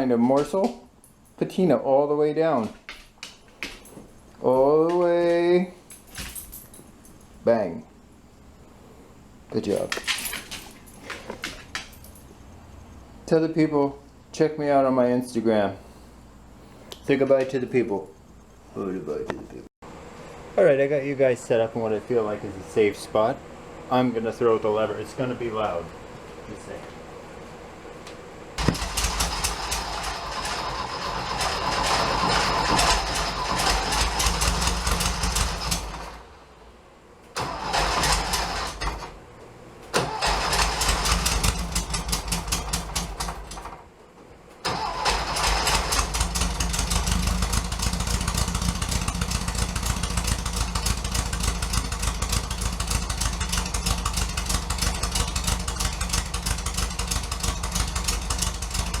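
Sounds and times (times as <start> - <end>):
engine starting and running: 28.6 - 39.2, 39.8 - 43.9, 44.5 - 59.0.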